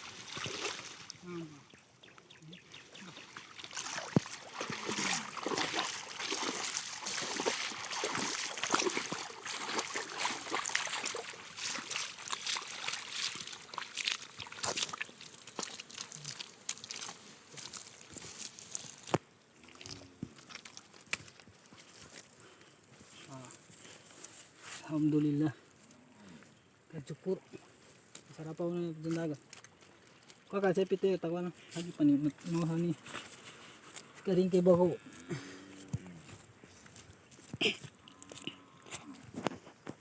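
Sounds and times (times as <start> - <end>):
river water splashing: 0.0 - 1.5, 2.6 - 21.0.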